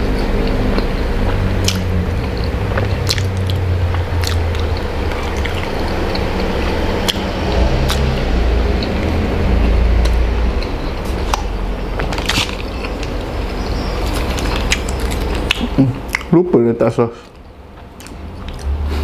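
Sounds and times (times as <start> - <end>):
low hum: 0.0 - 19.0
person chewing wetly: 0.4 - 16.3, 17.2 - 19.0
lip smacks: 2.8 - 5.7, 14.1 - 16.3.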